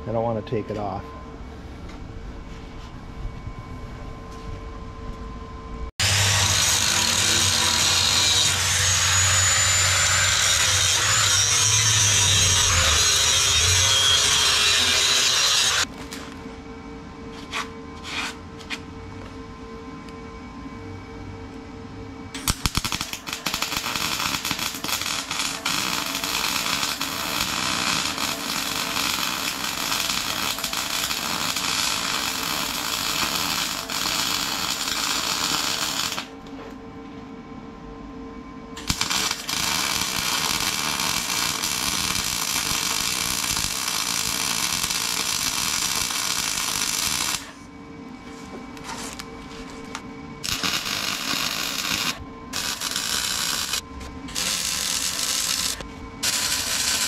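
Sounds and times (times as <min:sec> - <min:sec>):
steady hum: 0:00.0 - 0:57.0
arc welding crackle: 0:06.0 - 0:16.2, 0:22.4 - 0:36.4, 0:38.8 - 0:47.6, 0:49.9 - 0:57.0.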